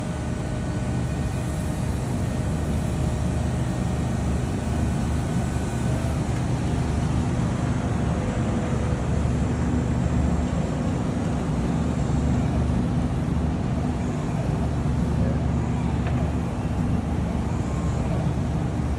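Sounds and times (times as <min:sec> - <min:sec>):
faint whine tones: 0:00.0 - 0:18.9.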